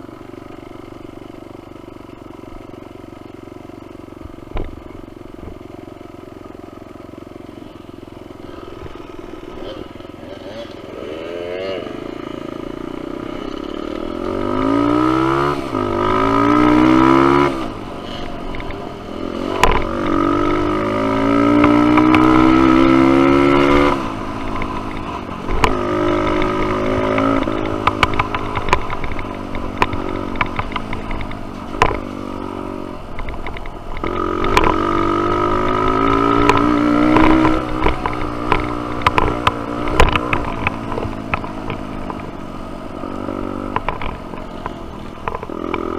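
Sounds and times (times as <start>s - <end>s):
dirt bike engine revving: 7.6s - 45.9s
sharp knocks and clatter: 19.5s - 20.8s, 24.5s - 32.2s, 33.1s - 35.0s, 35.6s - 42.3s, 43.6s - 45.9s.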